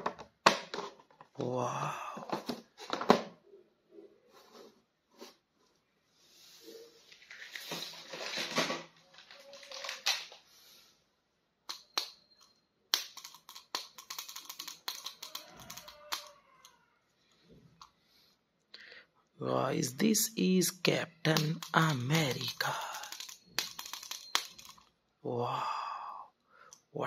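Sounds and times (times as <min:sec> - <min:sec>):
plastic packaging crinkling: 0:07.2 - 0:10.4, 0:21.3 - 0:24.8
rapid clicks and crackles: 0:13.0 - 0:16.3, 0:21.3 - 0:24.8.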